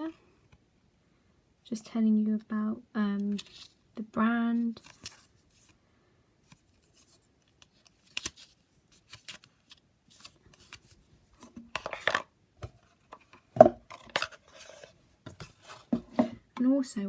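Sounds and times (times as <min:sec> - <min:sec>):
paper and cardboard rustling: 0:04.6 - 0:05.8, 0:06.5 - 0:16.4.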